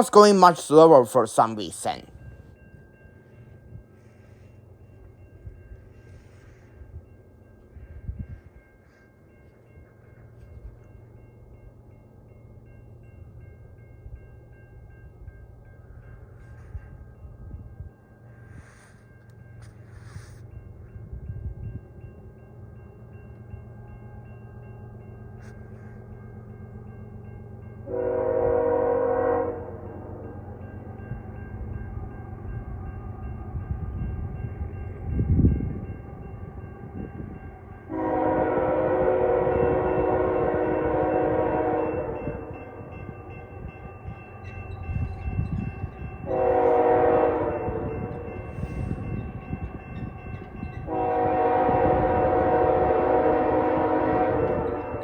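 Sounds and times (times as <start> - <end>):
locomotive air horn blasts: 27.9 - 29.8, 37.9 - 42.4, 46.2 - 48.2, 50.9 - 55.0.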